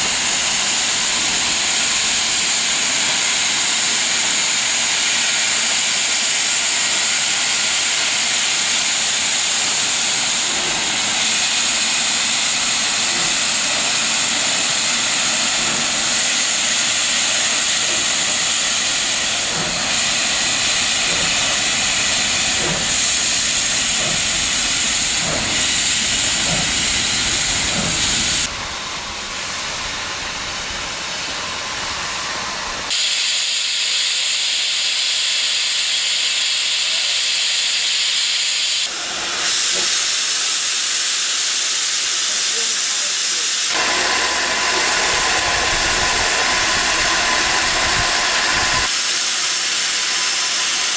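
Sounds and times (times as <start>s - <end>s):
steam locomotive hissing: 0.0s - 50.9s.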